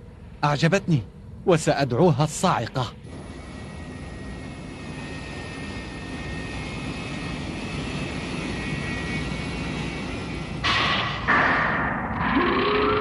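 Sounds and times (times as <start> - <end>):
faint high steady tones: 2.9 - 10.7
spaceship engine drone: 2.9 - 13.0.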